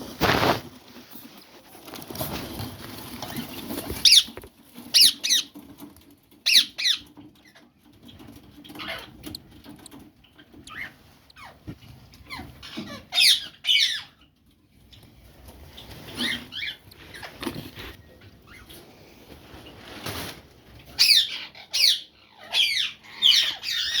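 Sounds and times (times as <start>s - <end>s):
small birds chirping: 3.2s - 19.0s, 20.9s - 24.0s.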